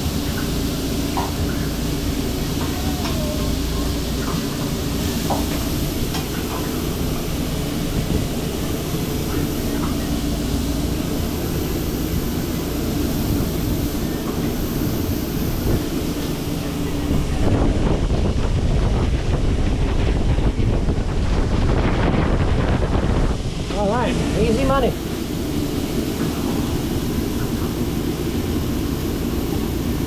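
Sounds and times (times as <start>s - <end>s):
wind on microphone: 7.8s - 8.7s, 16.9s - 24.8s.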